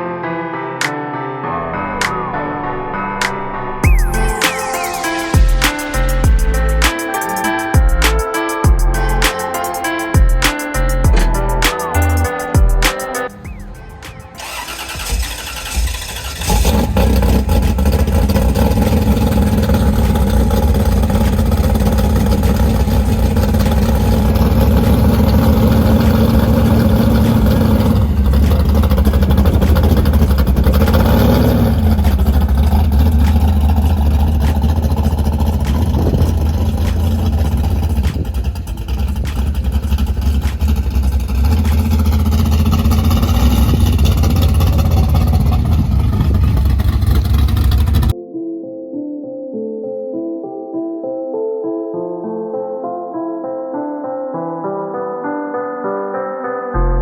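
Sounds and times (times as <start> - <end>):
engine revving: 13.3 - 48.1
vehicle engine starting and running: 13.3 - 48.2.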